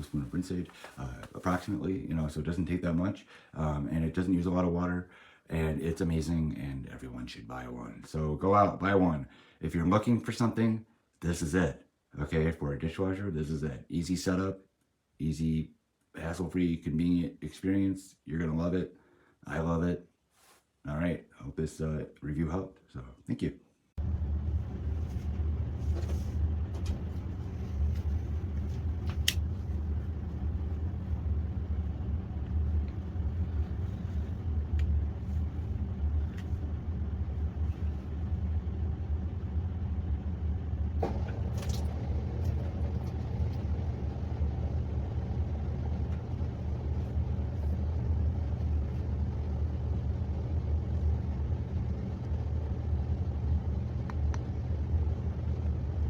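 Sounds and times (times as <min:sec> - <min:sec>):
dishwasher running: 0:24.0 - 0:53.5.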